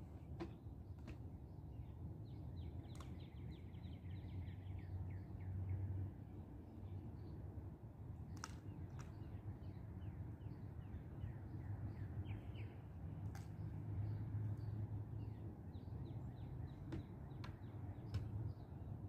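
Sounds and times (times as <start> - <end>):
birds chirping: 9.0 - 19.0.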